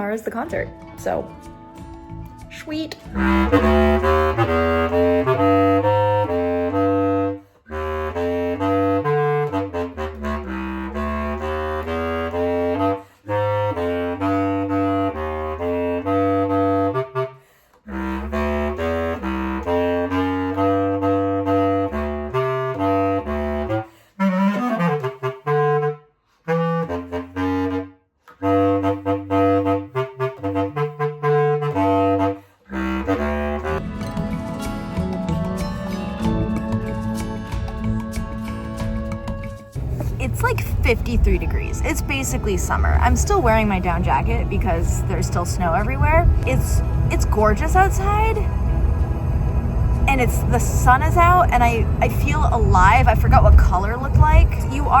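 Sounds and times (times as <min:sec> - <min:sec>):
clarinet playing phrases: 0:00.0 - 0:55.0
steady low tone: 0:39.8 - 0:55.0.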